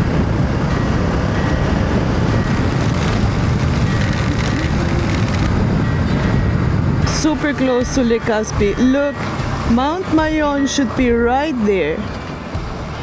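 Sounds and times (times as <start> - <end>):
wind and road noise: 0.0 - 13.0
motorcycle engine running: 1.6 - 5.7.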